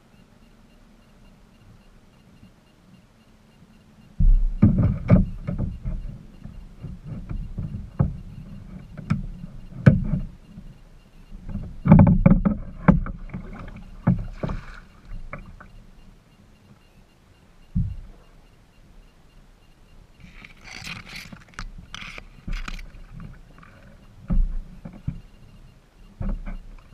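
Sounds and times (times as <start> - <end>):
kayak paddle knocks and thumps: 4.2 - 10.7, 11.4 - 15.7, 17.8 - 18.2, 20.2 - 25.3, 26.2 - 26.9
water splashing: 13.0 - 15.6.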